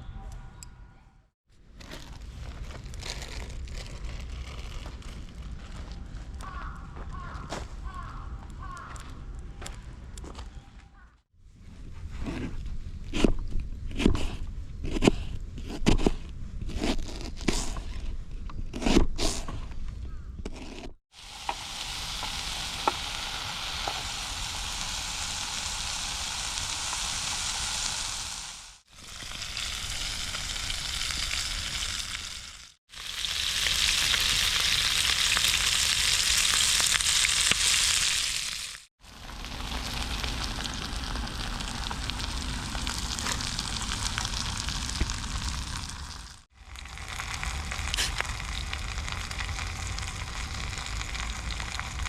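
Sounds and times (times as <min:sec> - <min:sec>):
chicken sizzling in a pan: 0:21.1 - 0:52.0.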